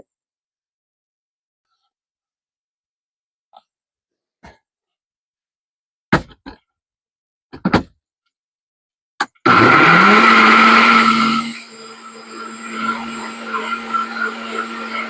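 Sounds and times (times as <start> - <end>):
blender motor running: 9.5 - 15.0.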